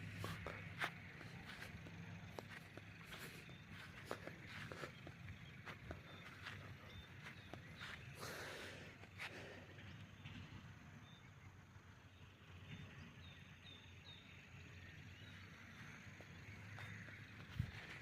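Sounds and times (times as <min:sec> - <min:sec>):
low steady rumble: 0:00.0 - 0:18.0
small bird chirping: 0:00.1 - 0:10.4.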